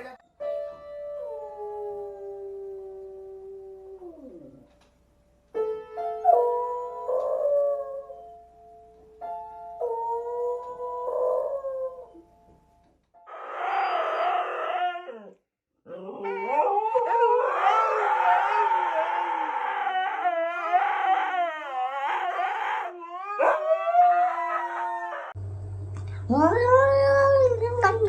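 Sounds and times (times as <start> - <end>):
dog howling: 13.2 - 25.4.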